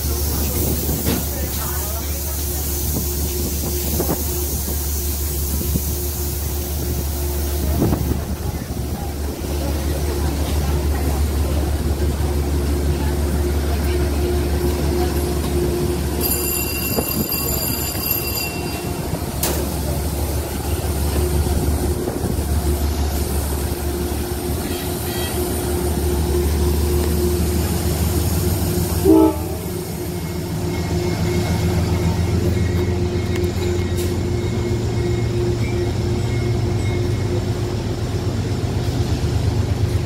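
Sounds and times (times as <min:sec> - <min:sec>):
train engine rumble: 0:00.0 - 0:40.0
train horn blast: 0:24.2 - 0:26.0, 0:28.7 - 0:30.2.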